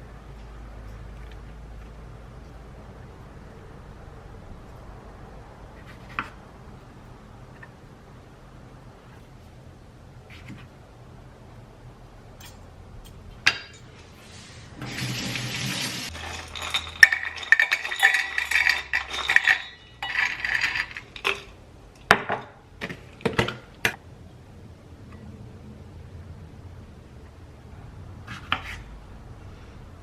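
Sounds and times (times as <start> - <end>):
utensils clinking and scraping dishes: 14.8 - 21.6.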